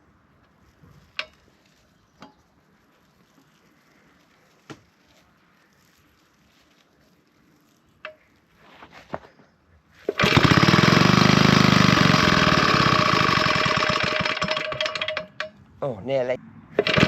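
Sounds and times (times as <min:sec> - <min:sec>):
engine turning over clicks: 0:10.1 - 0:15.6, 0:16.8 - 0:17.0
stationary engine running fast: 0:10.2 - 0:14.6.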